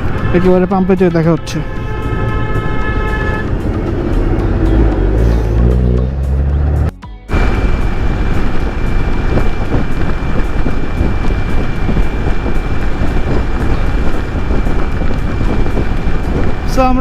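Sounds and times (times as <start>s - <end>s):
wind buffeting helmet camera: 7.3s - 17.0s
motorcycle engine running: 7.5s - 17.0s.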